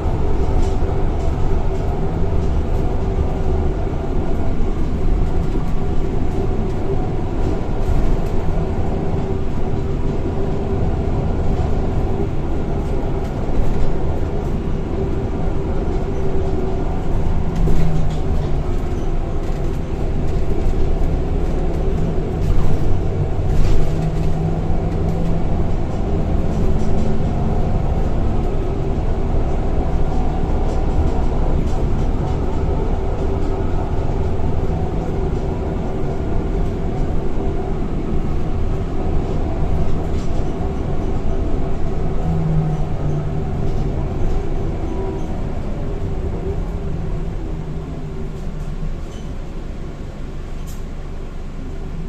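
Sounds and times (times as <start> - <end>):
bus engine rumble: 0.0 - 52.0.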